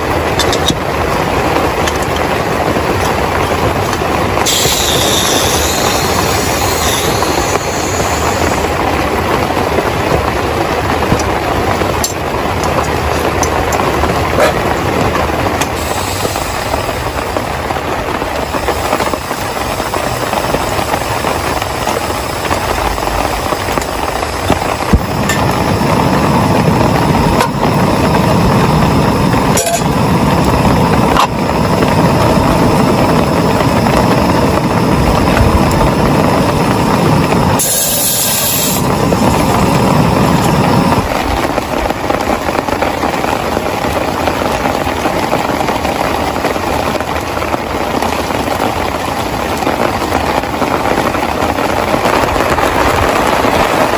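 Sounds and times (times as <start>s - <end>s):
heavy rain pouring: 0.0s - 53.9s
short hiss: 4.4s - 8.5s, 37.6s - 38.9s.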